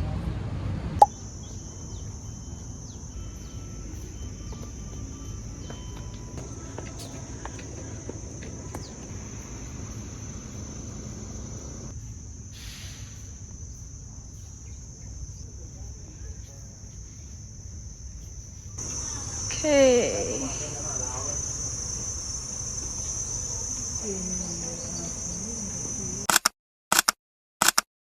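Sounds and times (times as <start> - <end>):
low background rumble: 0.0 - 12.4
crickets chirring: 1.0 - 26.3.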